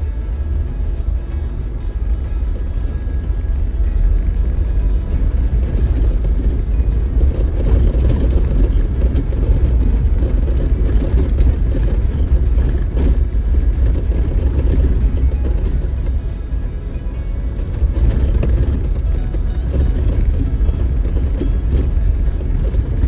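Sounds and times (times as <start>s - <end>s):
engine and tyres rumbling: 0.0s - 23.0s
knocks and rattles: 0.0s - 23.0s.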